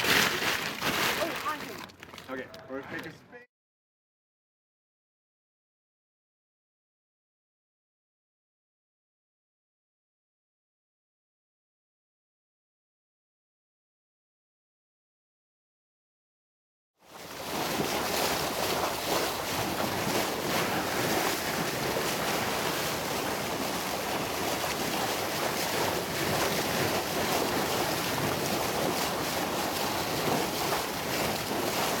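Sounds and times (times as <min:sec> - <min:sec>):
sea surf washing: 0:17.1 - 0:32.0
wind buffeting microphone: 0:17.4 - 0:32.0.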